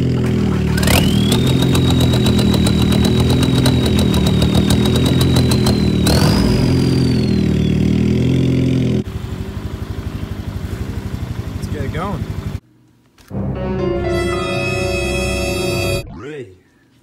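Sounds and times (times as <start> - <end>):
diesel engine running: 0.0 - 12.6
fast even ticking: 0.8 - 6.4
turbo high whistle: 0.9 - 8.0, 13.9 - 16.3.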